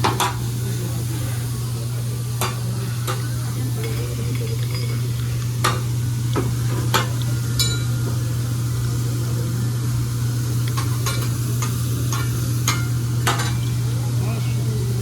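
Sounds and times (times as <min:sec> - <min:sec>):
food sizzling on a griddle: 0:00.0 - 0:15.0
steady low hum: 0:00.0 - 0:15.0
metal utensils clicking on hot plate: 0:10.7 - 0:13.6.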